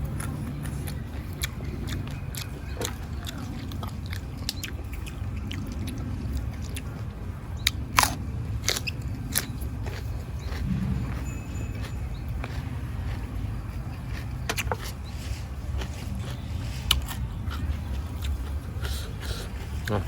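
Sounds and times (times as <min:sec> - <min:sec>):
person chewing food: 0:00.0 - 0:20.0
steady low hum: 0:00.0 - 0:20.0
crunches and clicks of biting: 0:07.6 - 0:10.8, 0:12.4 - 0:15.1, 0:15.8 - 0:20.0.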